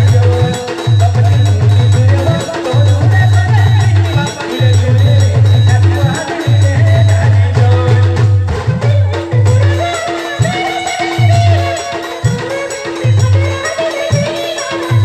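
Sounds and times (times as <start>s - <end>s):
fast low drum beat: 0.0s - 10.6s.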